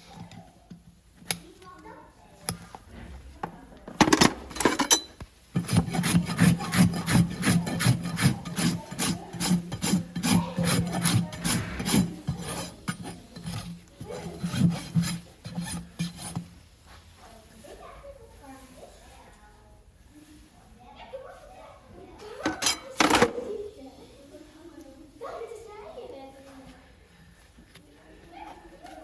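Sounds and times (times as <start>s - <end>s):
rasp filing horse hoof: 5.6s - 16.6s.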